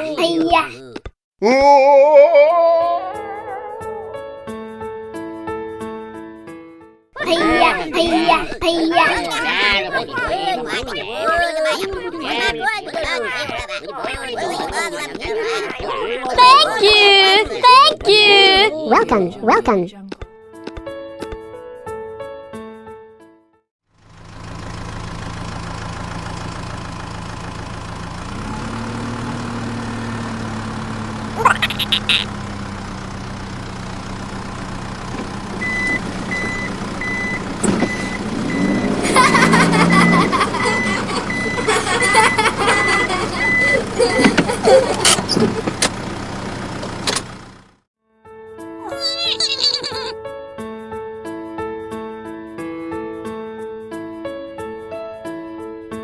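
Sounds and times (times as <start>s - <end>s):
truck engine running: 7.2s - 18.7s, 23.9s - 47.8s
reversing alarm beeping: 35.6s - 38.9s, 40.0s - 44.3s.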